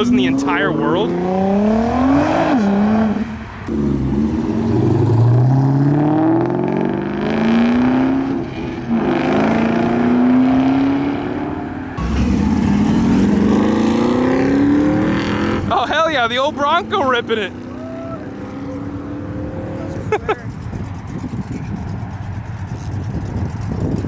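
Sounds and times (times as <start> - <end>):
car engine accelerating through gears: 0.0 - 15.8, 17.5 - 20.1.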